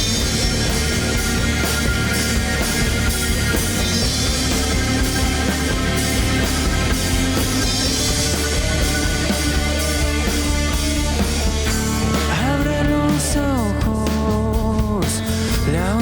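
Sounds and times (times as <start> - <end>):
bass guitar: 0.0 - 16.0
distorted electric guitars: 0.0 - 16.0
drum kit with cymbals: 0.0 - 16.0
person singing: 12.0 - 16.0.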